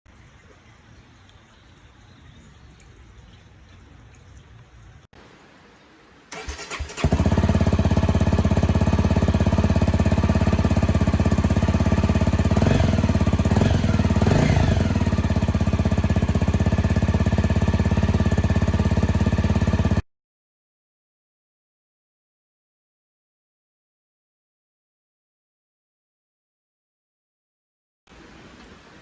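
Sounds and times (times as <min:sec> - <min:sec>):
engine throttle revs: 0:06.3 - 0:20.0
motorcycle engine starting: 0:06.3 - 0:20.0
motorcycle engine idling: 0:06.4 - 0:20.0.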